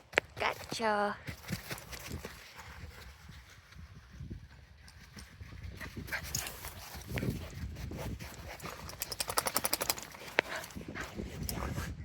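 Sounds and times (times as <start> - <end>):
dog paws crunching through snow: 0.0 - 4.7.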